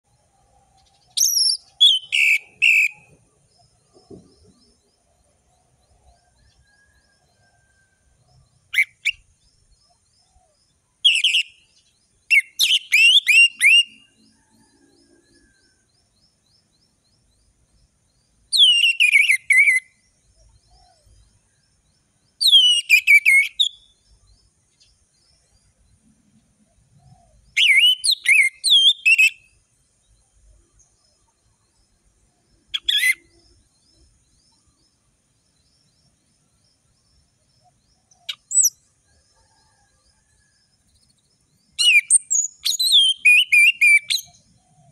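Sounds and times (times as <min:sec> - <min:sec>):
thrush singing whistled phrases: 0:01.2 - 0:03.2, 0:11.0 - 0:11.6, 0:12.3 - 0:14.1, 0:18.5 - 0:20.0, 0:22.4 - 0:23.9, 0:27.6 - 0:29.6, 0:41.8 - 0:44.4.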